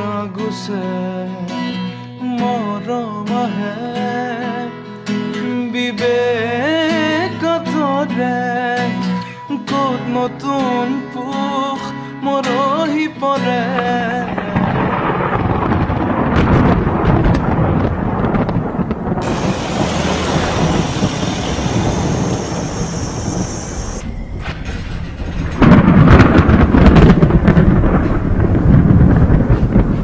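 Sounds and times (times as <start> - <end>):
crackling thunder peal: 13.7 - 30.0
rolling thunder: 14.0 - 30.0
rain hiss: 19.2 - 24.0.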